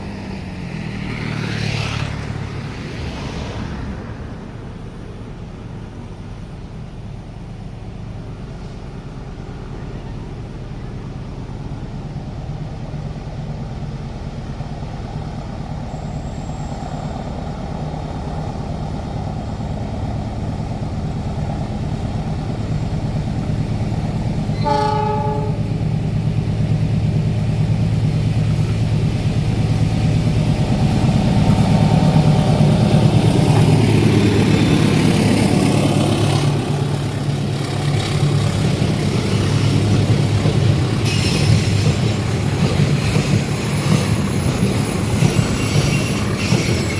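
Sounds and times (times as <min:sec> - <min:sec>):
locomotive engine hum: 0:02.2 - 0:46.9
train horn blast: 0:24.5 - 0:25.7.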